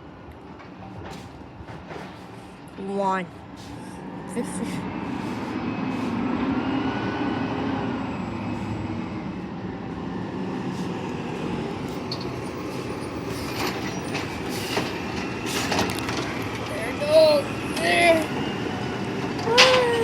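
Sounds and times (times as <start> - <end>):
garbage truck engine running: 11.2 - 20.0.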